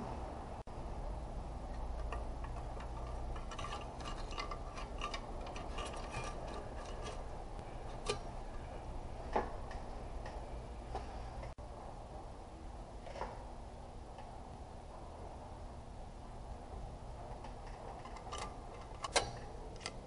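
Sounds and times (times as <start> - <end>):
steady low hum: 0.0 - 20.0
metal parts clicking and tapping: 1.7 - 8.7, 17.3 - 20.0.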